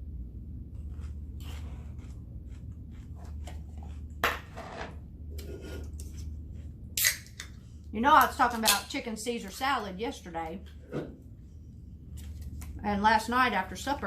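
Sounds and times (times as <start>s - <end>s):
chewing crunchy lettuce: 0.8s - 4.1s.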